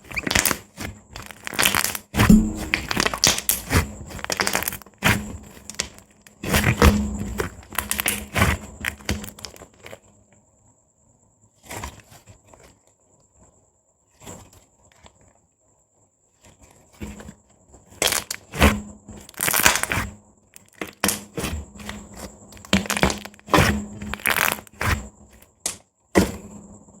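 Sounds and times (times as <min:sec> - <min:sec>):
slime popping and crackling: 0:00.2 - 0:00.6, 0:01.2 - 0:09.7, 0:18.0 - 0:18.4, 0:19.3 - 0:20.0, 0:22.6 - 0:25.0.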